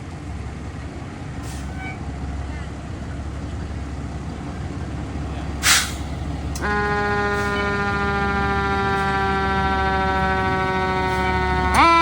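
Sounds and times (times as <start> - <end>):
idling engine hum: 0.0 - 12.0
short hiss: 5.6 - 6.1
siren wailing: 6.6 - 12.0.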